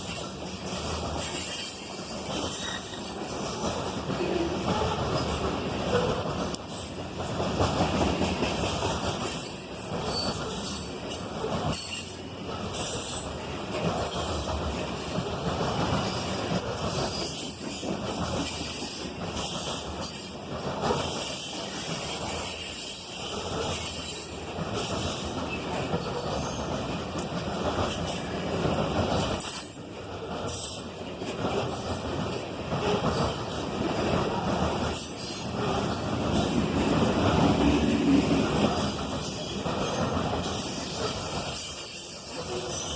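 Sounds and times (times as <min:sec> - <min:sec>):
freight train wheels rumbling on rails: 0:00.0 - 0:42.9.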